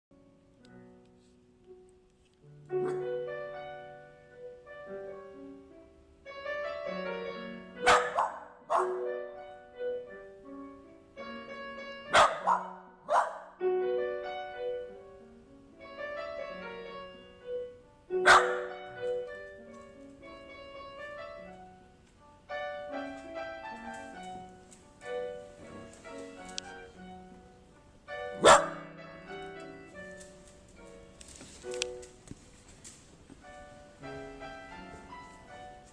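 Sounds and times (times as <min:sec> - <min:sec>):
solo piano music: 0:00.1 - 0:35.9
dog barking loudly: 0:07.8 - 0:09.1, 0:12.1 - 0:13.6, 0:18.2 - 0:18.8, 0:28.4 - 0:28.9.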